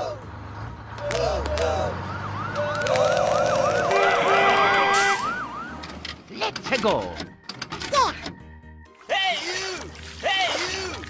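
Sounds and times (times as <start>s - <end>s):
cartoon police siren yelp: 1.6s - 5.9s.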